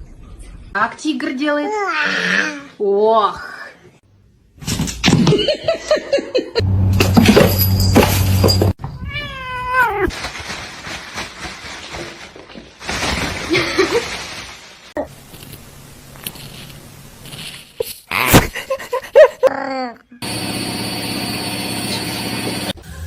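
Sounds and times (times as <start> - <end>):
cat yowling and meowing: 9.0 - 10.1.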